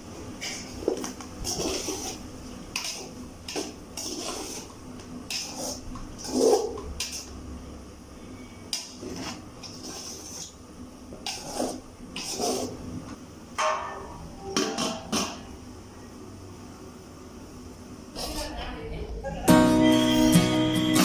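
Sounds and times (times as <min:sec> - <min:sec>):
metal utensils scraping cookware: 0:00.4 - 0:07.3.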